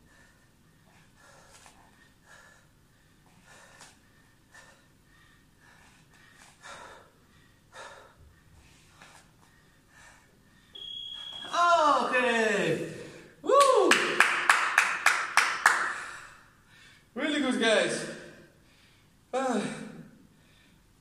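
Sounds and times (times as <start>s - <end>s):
person breathing hard: 0.0s - 10.8s, 15.8s - 17.2s, 18.2s - 21.0s.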